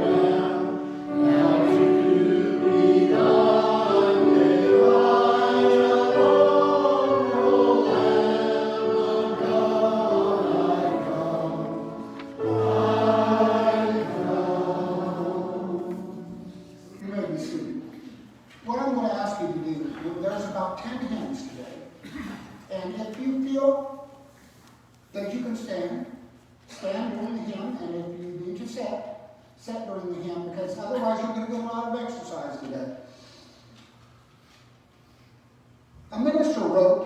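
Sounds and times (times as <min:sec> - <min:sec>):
group singing a hymn: 0:00.0 - 0:17.0.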